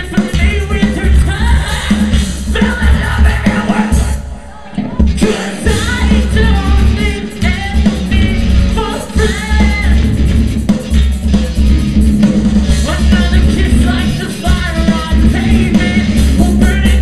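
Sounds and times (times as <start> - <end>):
person singing: 0.0 - 10.1, 12.8 - 17.0
rock band playing: 0.0 - 17.0.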